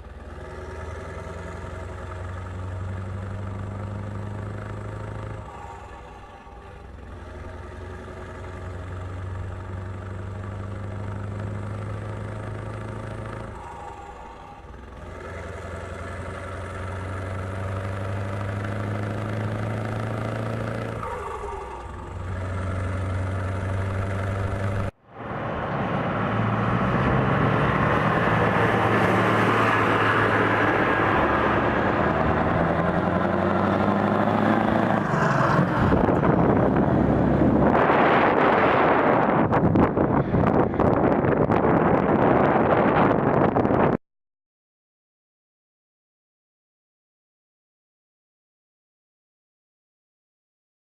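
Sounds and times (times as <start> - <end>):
diesel truck engine running: 0.0 - 43.8
wind noise on microphone: 35.7 - 44.0.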